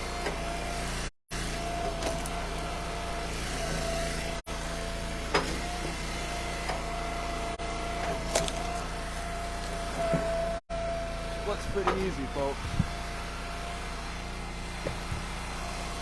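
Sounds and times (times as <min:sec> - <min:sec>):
log splitter engine humming: 0:00.0 - 0:16.0
wood cracking: 0:08.2 - 0:09.8.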